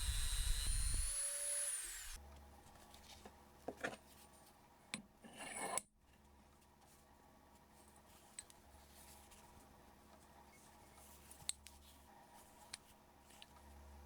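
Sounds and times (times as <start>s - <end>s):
power tool winding down: 0.0s - 2.2s.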